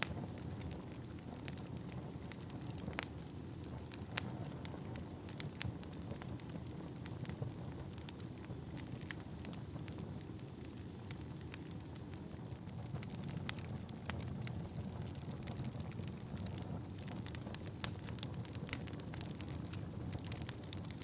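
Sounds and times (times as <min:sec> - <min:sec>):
burning logs crackling and popping: 0:00.0 - 0:21.0
low rumble of flame: 0:00.0 - 0:21.0
faint high whistle: 0:06.8 - 0:12.6.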